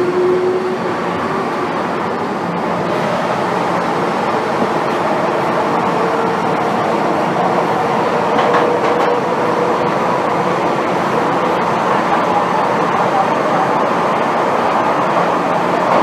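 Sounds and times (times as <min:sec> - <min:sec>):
train rolling rumble: 0:00.0 - 0:16.0.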